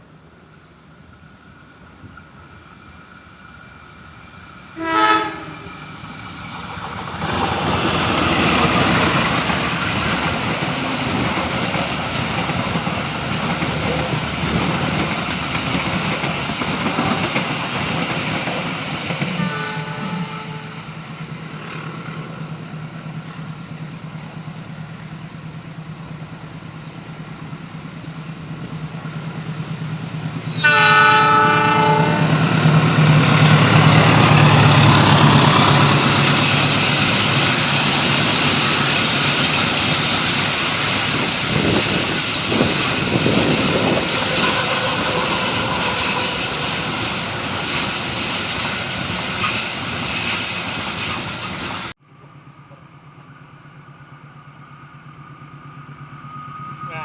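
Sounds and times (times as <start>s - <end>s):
high steady wheel squeal: 0.0s - 14.2s, 30.3s - 52.0s, 52.6s - 57.0s
train wheels clacking: 4.6s - 23.6s, 28.6s - 51.9s
train horn: 4.7s - 5.8s, 19.3s - 20.9s, 30.4s - 32.5s, 44.2s - 46.9s
locomotive engine hum: 19.6s - 57.0s.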